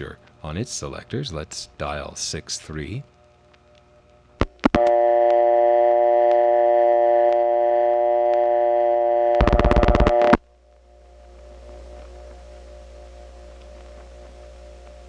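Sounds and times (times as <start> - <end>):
low line hum: 2.8 - 15.0
buzzy dial tone: 4.4 - 10.4
rotary dial pulses: 9.4 - 10.4.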